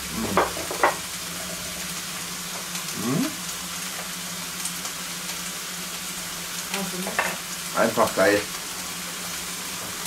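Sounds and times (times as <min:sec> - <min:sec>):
food frying sizzle: 0:00.0 - 0:10.0.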